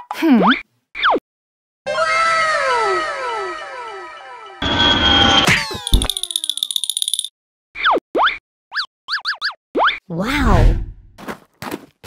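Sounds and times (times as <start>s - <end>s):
falling-pitch tones: 1.9s - 6.9s
cartoon crash: 4.6s - 6.4s
fast high ringing trill: 4.6s - 7.3s.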